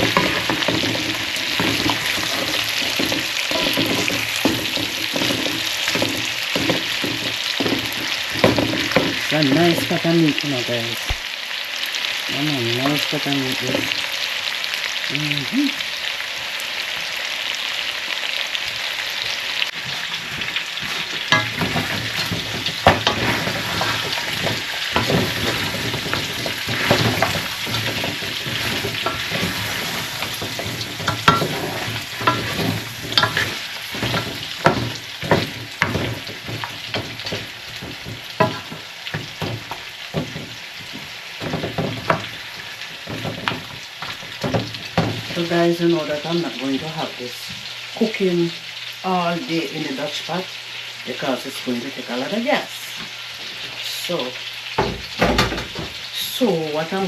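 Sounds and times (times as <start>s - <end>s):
utensil scraping a pot: 0.0s - 10.0s, 19.7s - 45.6s
meat sizzling in oil: 0.0s - 57.0s.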